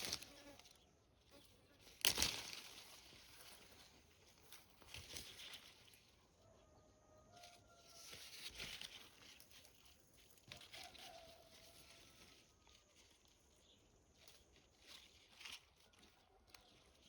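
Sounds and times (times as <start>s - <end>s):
rustling and light patter: 0.0s - 6.5s, 7.3s - 17.0s
distant rooster crowing: 6.4s - 8.4s, 10.5s - 12.9s.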